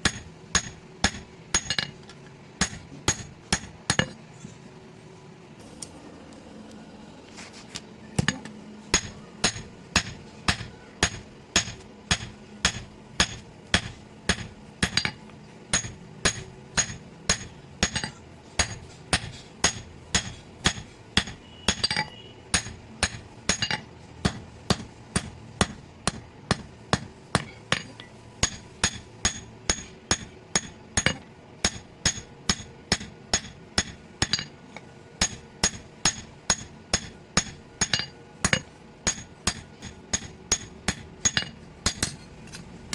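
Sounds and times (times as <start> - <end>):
hammer ringing on anvil: 8.2 - 34.5, 35.2 - 42.2.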